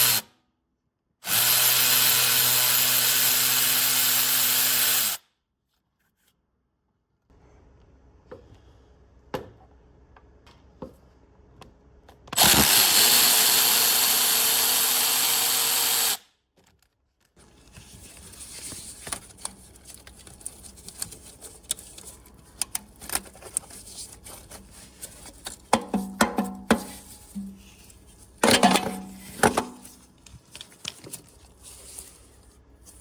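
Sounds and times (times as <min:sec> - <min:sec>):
power tool running: 0:01.2 - 0:05.2, 0:12.4 - 0:16.2
light tapping and tool clatter: 0:18.7 - 0:32.0.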